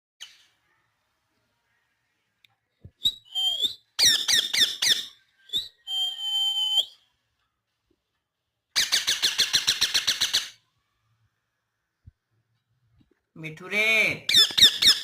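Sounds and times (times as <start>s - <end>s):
parrot calling and whistling: 3.0s - 7.0s, 14.3s - 15.0s.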